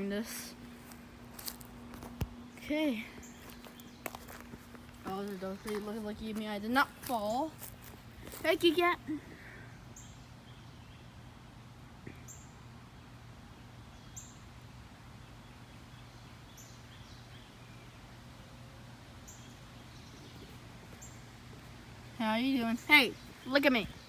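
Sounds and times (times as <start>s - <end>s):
birds chirping: 0.0s - 11.2s, 19.1s - 24.0s.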